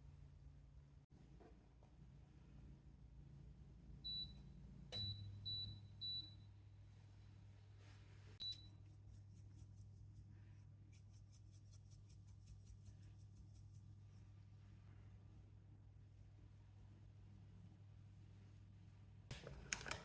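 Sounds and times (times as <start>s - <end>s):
appliance control panel beeps: 4.0s - 6.5s, 8.4s - 8.7s.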